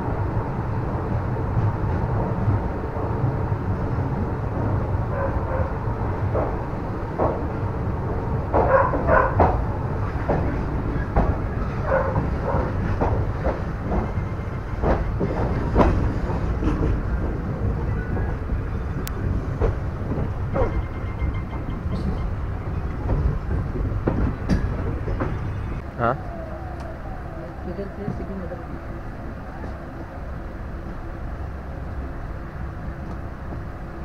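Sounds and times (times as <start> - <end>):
train rumble: 0.0 - 34.0
wheels clicking over rail joints: 6.2 - 27.0.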